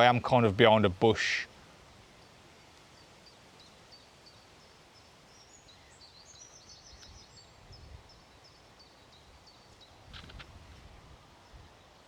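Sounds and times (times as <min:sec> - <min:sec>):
small bird singing: 0:03.0 - 0:10.4
wind rumble on microphone: 0:07.1 - 0:08.2, 0:10.1 - 0:11.8.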